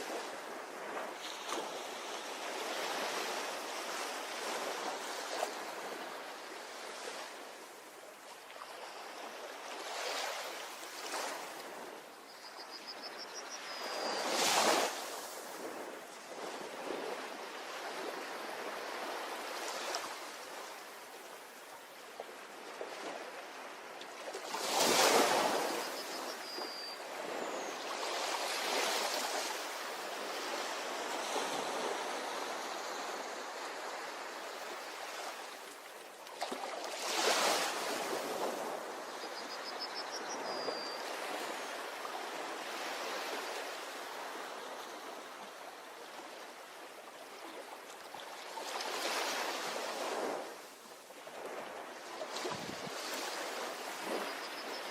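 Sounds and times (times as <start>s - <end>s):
ocean surf breaking on beach: 48.6s - 54.3s.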